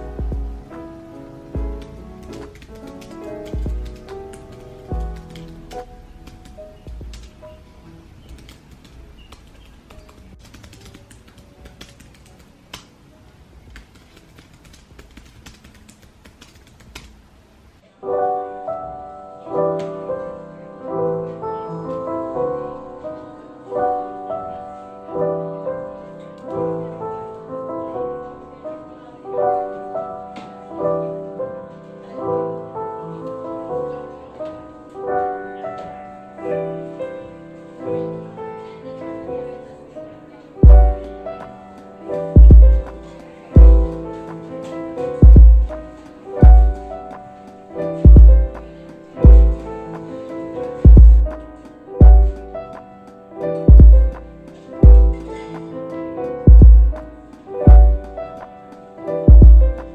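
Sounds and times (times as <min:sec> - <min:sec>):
soft piano music: 0:00.0 - 0:16.5, 0:17.7 - 0:59.9
computer keyboard typing: 0:01.8 - 0:07.4, 0:08.2 - 0:12.9, 0:13.7 - 0:17.1.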